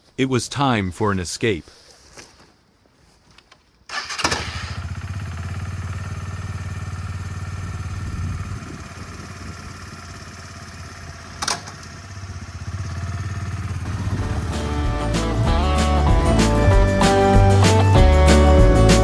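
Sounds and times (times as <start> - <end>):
motorcycle engine starting and running: 3.9 - 19.0.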